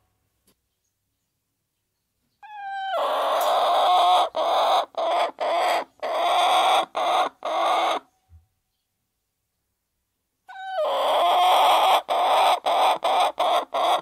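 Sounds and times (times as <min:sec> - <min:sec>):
chicken squawking: 0:02.4 - 0:08.1, 0:10.5 - 0:14.0.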